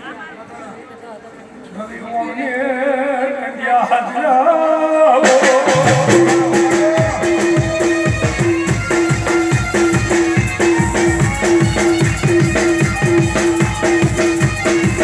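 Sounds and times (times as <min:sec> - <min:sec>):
person singing wavering line: 0:05.2 - 0:08.6
folk band with drums and rattles: 0:05.2 - 0:15.0.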